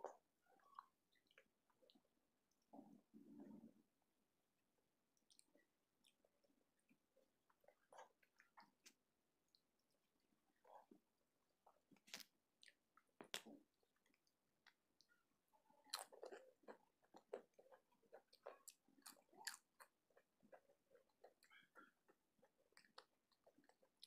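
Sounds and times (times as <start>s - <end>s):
wet chewing and mouth clicks: 5.2s - 24.0s.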